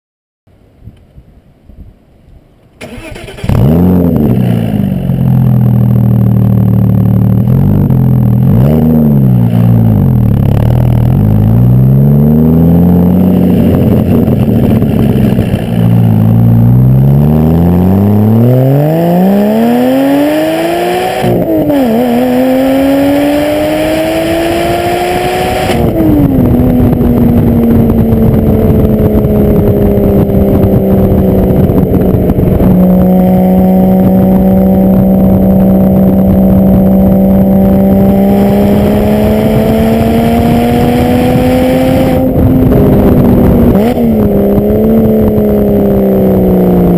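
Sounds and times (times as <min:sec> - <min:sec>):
car exhaust revving: 0:02.8 - 0:46.9.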